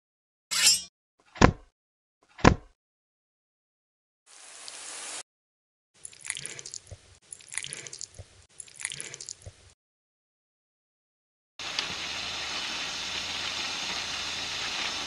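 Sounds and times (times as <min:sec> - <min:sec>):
liquid pouring: 0:06.0 - 0:09.7.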